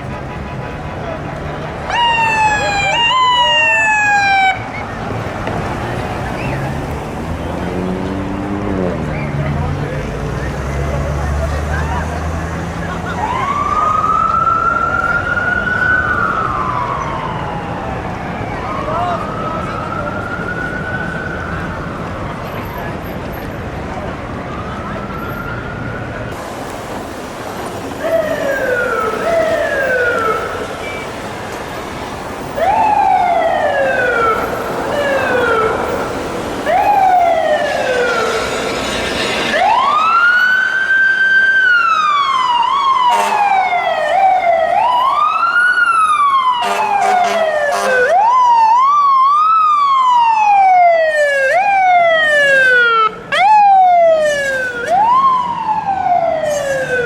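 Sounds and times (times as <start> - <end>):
slow rising and falling siren: 1.2 - 26.4, 27.8 - 57.0
electronic sirens sweeping: 1.8 - 9.4, 13.1 - 23.7, 27.9 - 57.0
air horn bursts: 43.0 - 43.8, 46.6 - 48.2.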